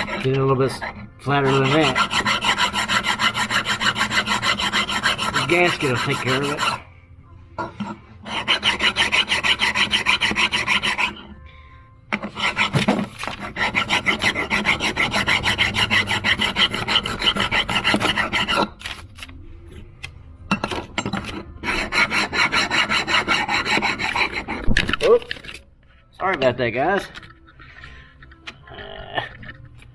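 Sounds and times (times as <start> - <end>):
file rasping on metal: 0.0 - 6.9, 7.8 - 11.4, 12.1 - 18.8, 21.0 - 24.9.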